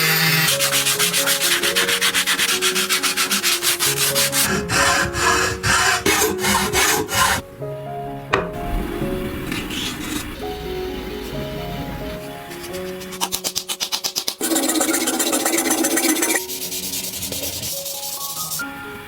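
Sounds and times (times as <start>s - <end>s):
hand sanding strokes: 0.0s - 7.4s, 12.2s - 18.9s
background music: 0.0s - 19.0s.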